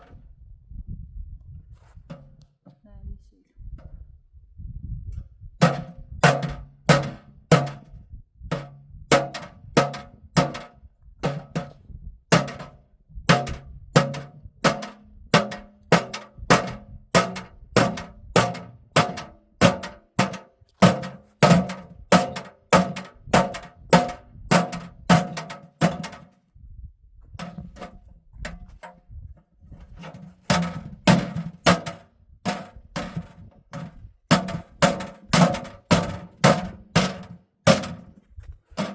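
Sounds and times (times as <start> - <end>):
hollow ringing strikes: 12.4 - 26.2.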